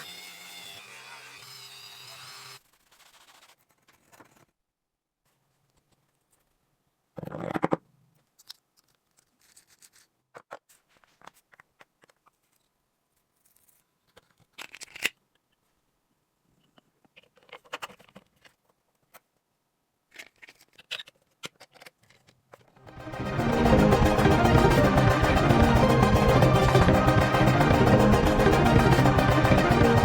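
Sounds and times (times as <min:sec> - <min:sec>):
scraping on toy: 0:09.2 - 0:11.5.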